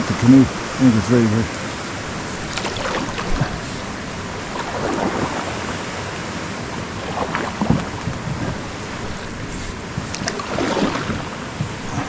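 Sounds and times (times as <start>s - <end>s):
waterfall rushing: 0.0s - 12.0s
short splashes or scrapes: 2.0s - 5.8s, 6.9s - 12.0s.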